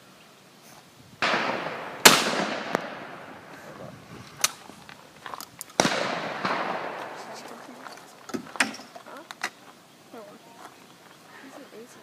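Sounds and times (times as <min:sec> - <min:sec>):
shotgun shots echoing: 0:01.2 - 0:03.5, 0:05.8 - 0:07.8.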